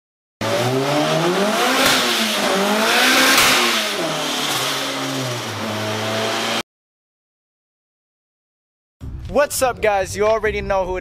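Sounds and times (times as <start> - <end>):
car engine revving: 0.4 - 6.6.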